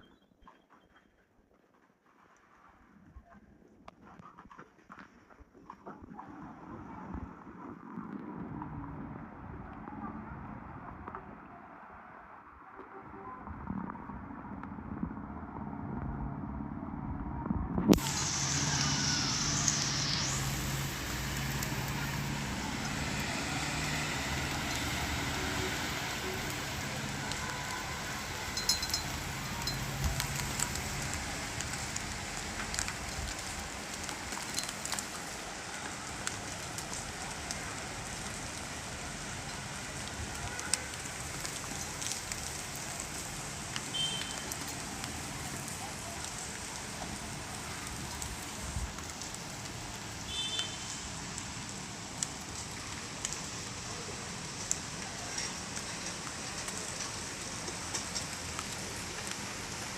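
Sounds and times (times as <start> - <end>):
heavy rain hiss: 17.9 - 59.9.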